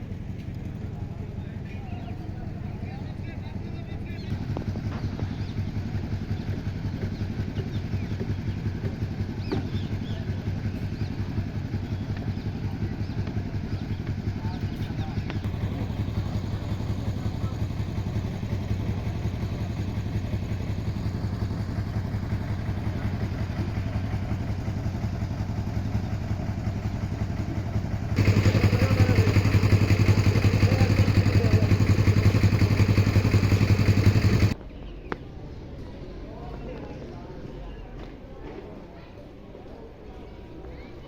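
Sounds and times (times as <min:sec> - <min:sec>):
engine humming: 0:04.2 - 0:34.6.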